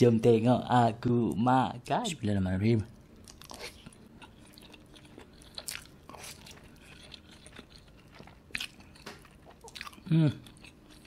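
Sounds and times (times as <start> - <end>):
sticky chewing: 3.2 - 11.0.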